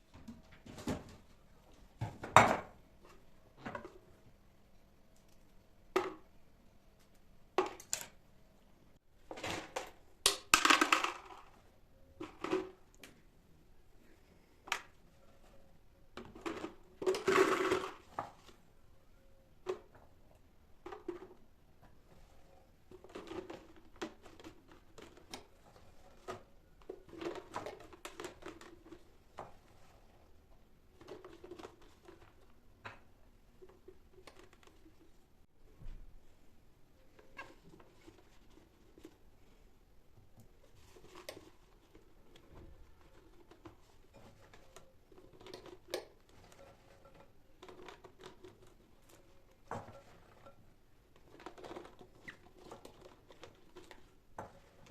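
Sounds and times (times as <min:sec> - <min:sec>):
rustling or scraping: 0:40.6 - 0:54.9.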